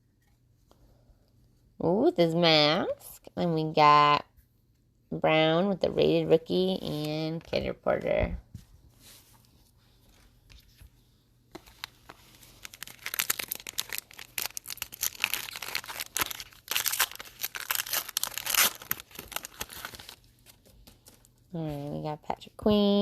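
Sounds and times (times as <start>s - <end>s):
wrapper tearing and crinkling: 11.6s - 20.3s.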